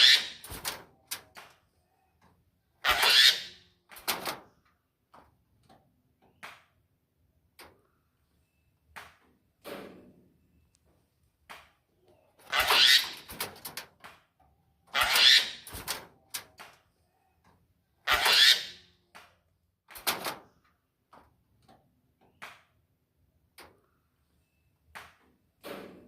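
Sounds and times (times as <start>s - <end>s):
starling harsh screeching calls: 2.8s - 3.6s, 12.5s - 13.3s, 14.9s - 15.7s, 18.1s - 18.8s.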